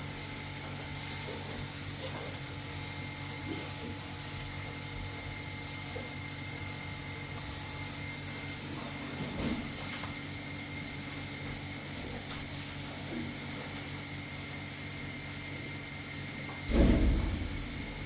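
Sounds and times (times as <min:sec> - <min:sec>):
even hiss: 0:16.7 - 0:18.0
machine hum with high whine: 0:16.7 - 0:18.0.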